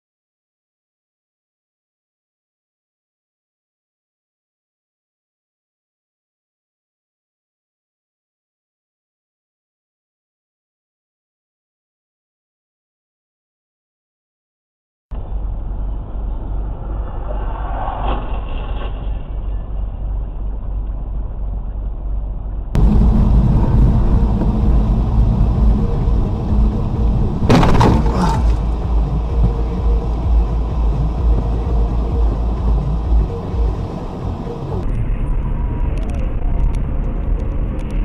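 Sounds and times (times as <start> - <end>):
traffic road and engine rumble: 15.1 - 38.0
sudden loud burst of noise: 27.3 - 28.7.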